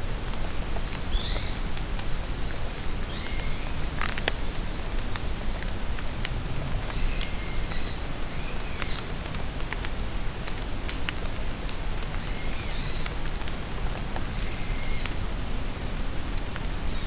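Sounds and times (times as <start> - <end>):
rain pattering in forest: 0.0 - 17.0
songbird singing: 0.2 - 5.0, 6.8 - 9.1.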